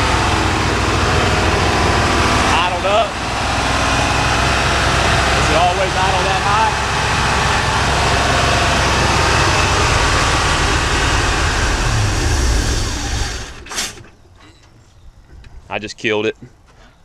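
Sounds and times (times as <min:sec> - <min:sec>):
engine running down: 0:00.0 - 0:14.2
pickup engine fast idle: 0:02.6 - 0:14.1.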